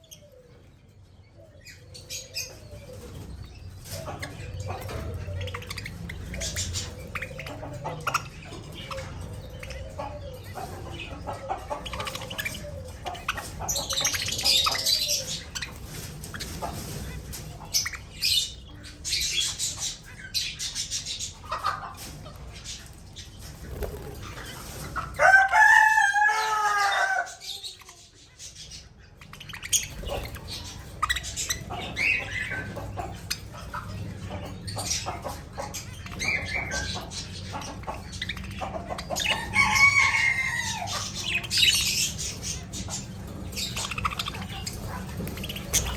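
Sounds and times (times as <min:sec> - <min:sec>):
budgie chatter and warbling: 0:02.2 - 0:25.2, 0:27.4 - 0:45.9
wing fluttering: 0:22.0 - 0:25.2.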